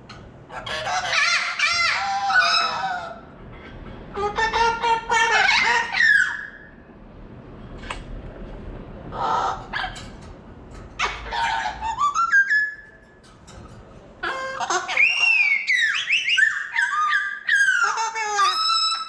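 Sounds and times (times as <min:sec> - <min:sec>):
parrot harsh bark-like calls: 0:00.5 - 0:03.3, 0:04.1 - 0:06.8, 0:09.1 - 0:10.1, 0:11.0 - 0:13.0, 0:14.2 - 0:19.0
parrot whistle: 0:11.6 - 0:12.8, 0:14.9 - 0:19.0.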